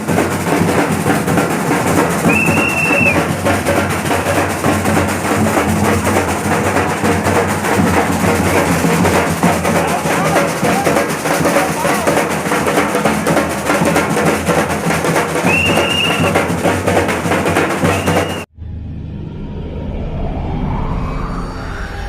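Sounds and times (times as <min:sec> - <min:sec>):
group drumming: 0:00.0 - 0:18.5
whistle blast: 0:02.2 - 0:03.3, 0:15.4 - 0:16.5, 0:17.8 - 0:18.5.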